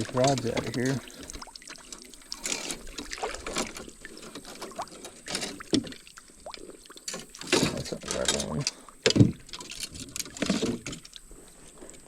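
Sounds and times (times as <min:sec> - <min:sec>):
fishing gear knocking against hull: 0:00.0 - 0:01.4, 0:07.2 - 0:11.1.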